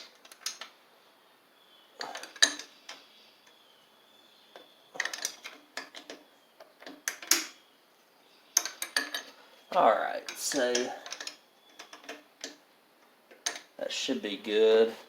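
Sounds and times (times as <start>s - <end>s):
wrench clicking on metal bolts: 2.0s - 3.0s, 5.0s - 6.2s, 8.6s - 9.3s, 13.3s - 13.7s.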